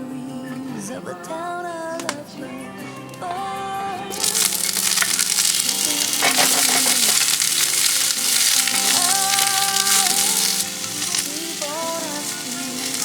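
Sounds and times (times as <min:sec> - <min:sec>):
faint music: 0:00.0 - 0:13.0
food sizzling in a pan: 0:04.1 - 0:13.0.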